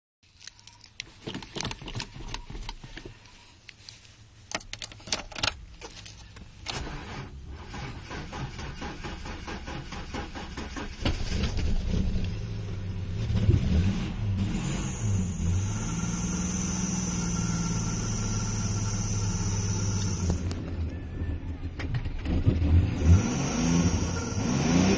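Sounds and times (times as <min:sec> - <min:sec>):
car engine starting and revving: 0:06.7 - 0:24.9.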